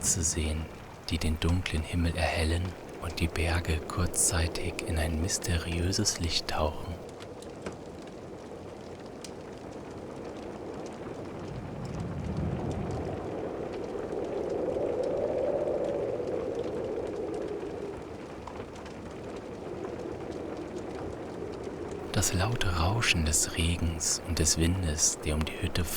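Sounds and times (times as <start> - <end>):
distant thunder rumble: 0.0 - 7.0
faint crackling: 0.0 - 7.0, 22.0 - 25.9
steady rain: 0.0 - 25.9.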